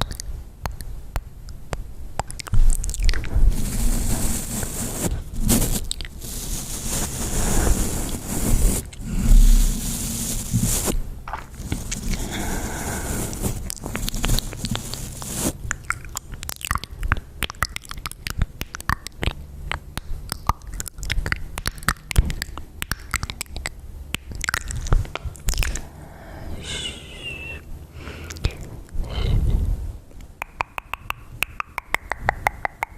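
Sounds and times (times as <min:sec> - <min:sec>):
wet mouth clicks and smacks: 0:00.0 - 0:03.3, 0:11.2 - 0:12.3, 0:13.4 - 0:25.8, 0:28.3 - 0:29.0, 0:30.1 - 0:32.9
soft brushing hiss: 0:02.6 - 0:16.4, 0:24.8 - 0:30.2.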